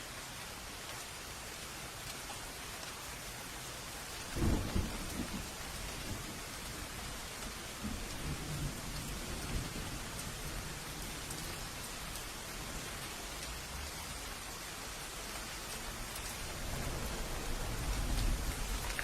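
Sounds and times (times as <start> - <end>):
steady rain falling: 0.0 - 19.0
thunder rumbling: 4.2 - 13.0, 15.8 - 19.0.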